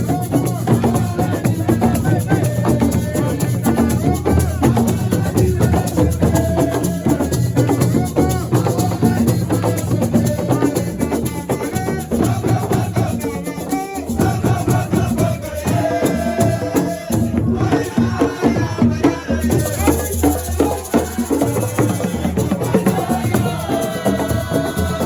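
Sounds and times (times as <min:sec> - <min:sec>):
driving drums: 0:00.0 - 0:25.0
person singing: 0:00.0 - 0:25.0
shaker rattles: 0:19.5 - 0:25.0.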